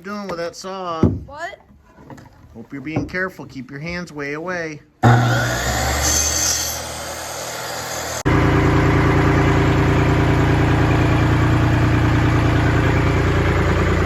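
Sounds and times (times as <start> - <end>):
tractor engine idling: 8.2 - 14.0.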